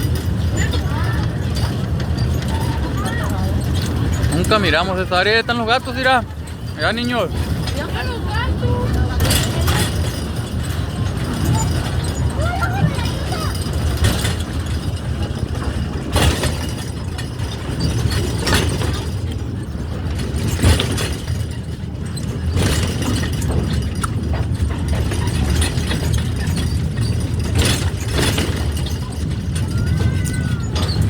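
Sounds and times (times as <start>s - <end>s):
small train rumbling: 0.0s - 31.0s
train knocks and clacks: 0.0s - 31.0s.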